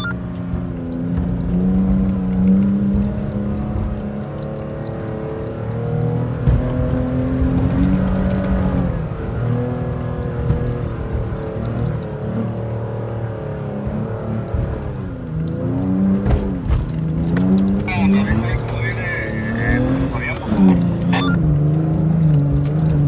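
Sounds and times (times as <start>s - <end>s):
off-road vehicle engine: 0.0s - 23.0s.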